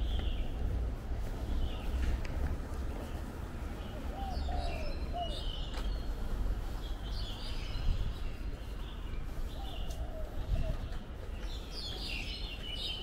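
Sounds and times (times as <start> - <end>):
birds chirping: 0.0 - 0.7, 3.0 - 13.0
low city rumble: 0.0 - 13.0.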